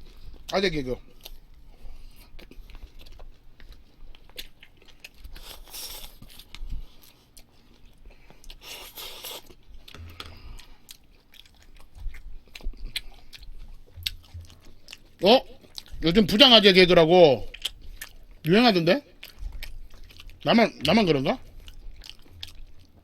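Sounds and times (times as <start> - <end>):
person chewing food: 0.0 - 16.6, 17.2 - 23.0
crunchy chewing: 0.0 - 23.0
wet mouth clicks: 11.8 - 15.0.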